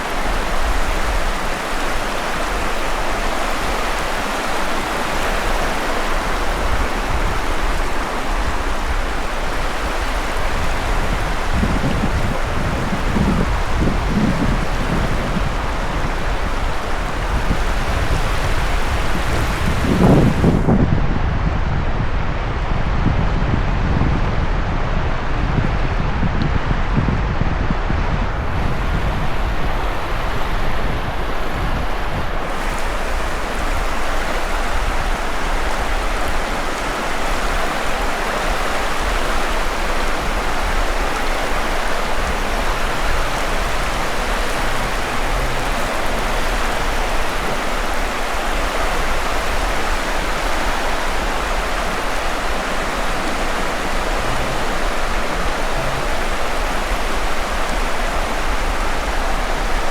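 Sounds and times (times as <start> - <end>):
sea surf rushing: 0.0 - 23.1, 23.8 - 59.9
wind buffeting microphone: 0.0 - 59.9.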